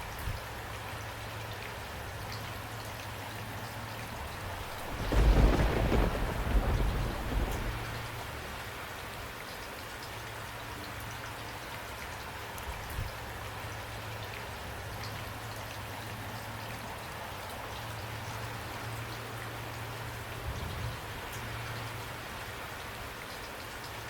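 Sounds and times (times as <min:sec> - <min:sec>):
rain hiss: 0:00.4 - 0:11.6.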